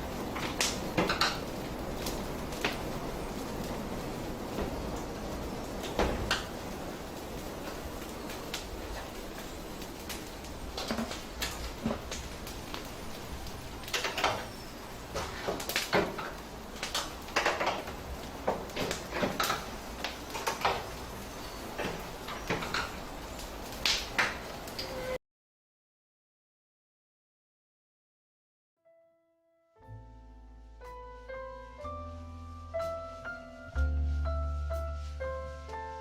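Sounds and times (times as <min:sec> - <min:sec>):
kitchen knocks and clatter: 0:15.2 - 0:19.7.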